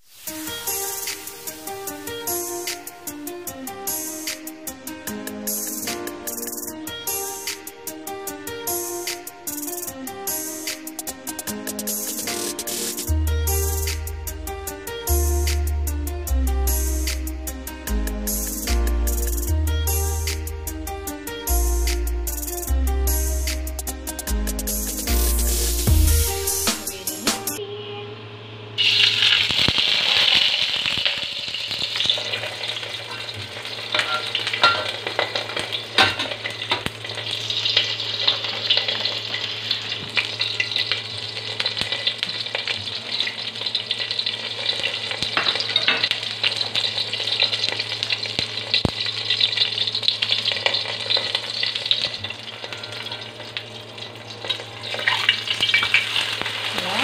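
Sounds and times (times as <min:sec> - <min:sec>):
pancake sizzling in hot oil: 0:00.0 - 0:03.0, 0:28.8 - 0:57.0.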